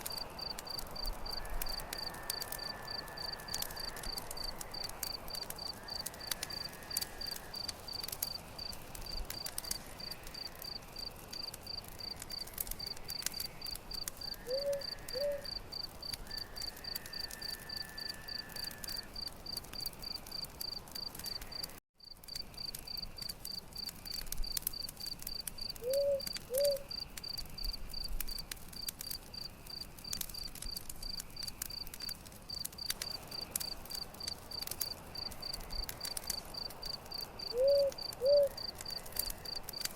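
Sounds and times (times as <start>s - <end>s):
campfire crackling and popping: 0.0s - 39.9s
cricket chirping: 0.0s - 39.9s.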